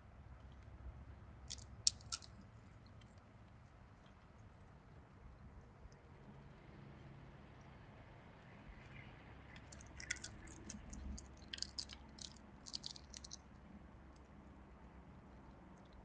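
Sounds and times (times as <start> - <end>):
animal chewing peanut shells: 1.5 - 3.0, 9.5 - 14.3.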